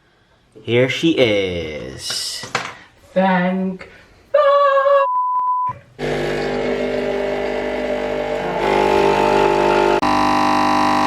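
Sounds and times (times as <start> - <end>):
coffee machine humming: 6.0 - 11.0.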